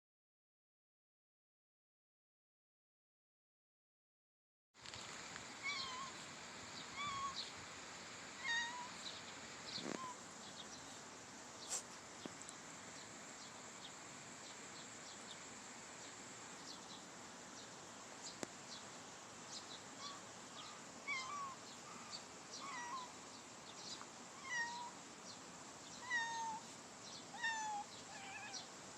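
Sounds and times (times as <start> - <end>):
kitten mewing: 21.1 - 21.6, 22.6 - 23.1, 24.4 - 25.0.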